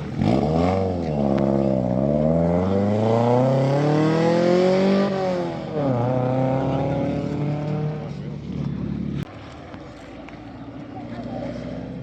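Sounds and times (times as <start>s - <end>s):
car engine accelerating: 0.0s - 9.3s.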